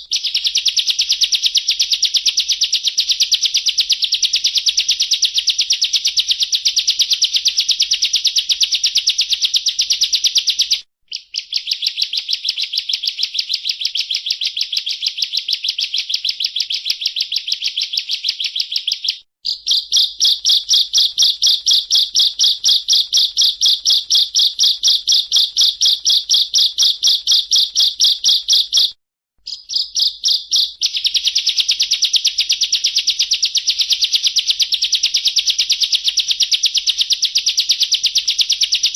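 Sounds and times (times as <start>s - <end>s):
bird singing rapid trills: 18.6s - 38.9s.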